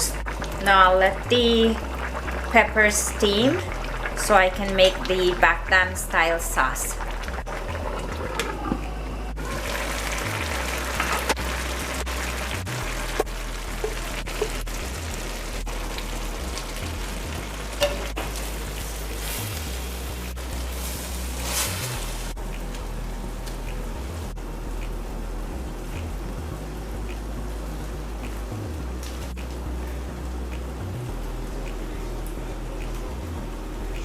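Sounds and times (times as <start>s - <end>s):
food sizzling in a wok: 9.4s - 22.4s.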